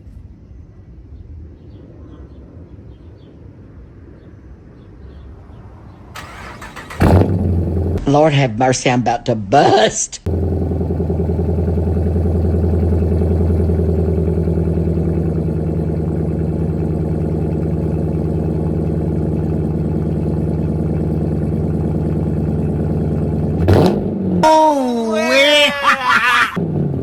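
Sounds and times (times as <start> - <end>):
car engine idling: 6.2 - 8.0, 10.3 - 24.6, 26.6 - 27.0.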